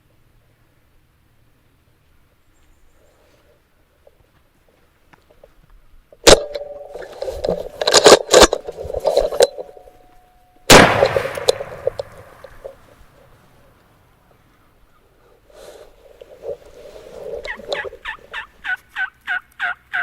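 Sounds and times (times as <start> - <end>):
sharp crack: 6.2 - 9.8, 10.7 - 14.0
shotgun blast: 10.7 - 13.1.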